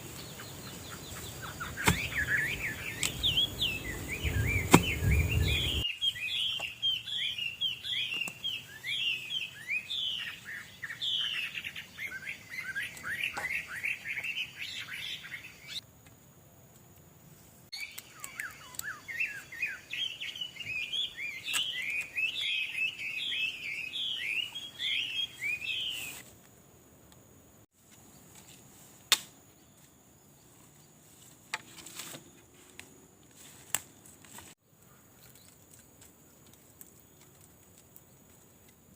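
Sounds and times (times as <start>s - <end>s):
songbird chirping: 0.0s - 16.4s, 17.2s - 26.2s.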